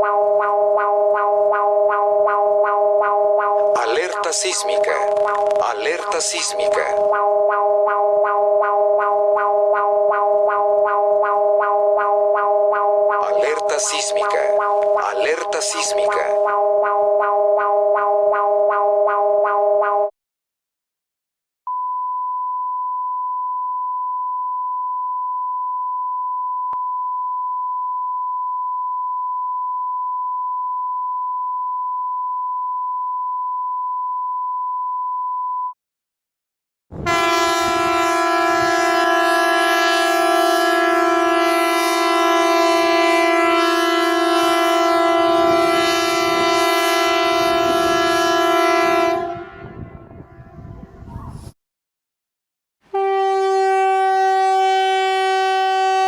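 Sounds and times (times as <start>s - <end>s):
steady pure beep tone: 0.0s - 4.9s, 6.0s - 20.1s
horn-like alarm tone: 0.0s - 20.1s, 37.0s - 50.9s, 52.9s - 56.0s.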